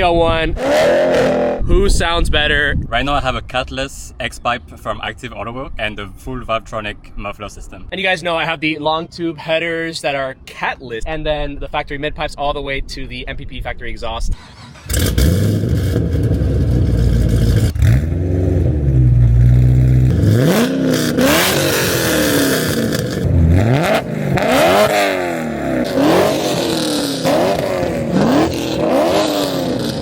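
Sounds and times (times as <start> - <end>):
engine revving: 0.6 - 1.8, 14.4 - 30.0.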